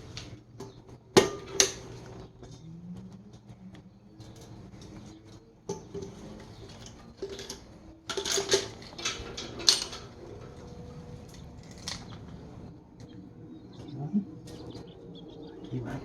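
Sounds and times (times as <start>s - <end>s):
metal parts clinking and clattering: 5.7s - 12.4s.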